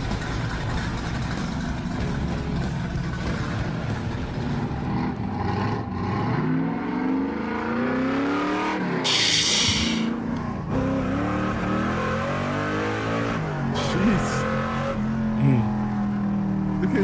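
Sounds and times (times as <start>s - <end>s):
car engine accelerating hard: 0.0s - 17.0s
loud burst of hiss: 9.1s - 10.1s.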